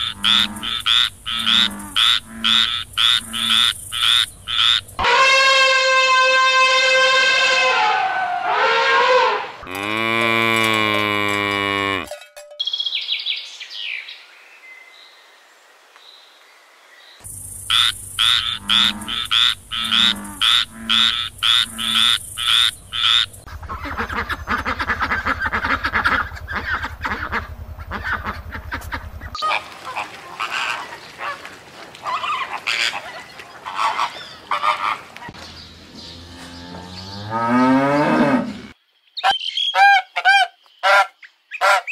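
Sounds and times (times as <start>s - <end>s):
frogs croaking: 0.0s - 5.0s, 17.1s - 35.1s
elephant trumpeting: 4.6s - 12.1s.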